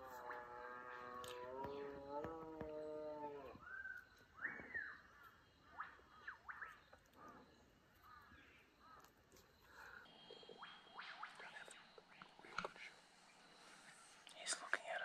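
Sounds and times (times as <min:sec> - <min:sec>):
birds chirping and whistling: 0:03.6 - 0:07.0.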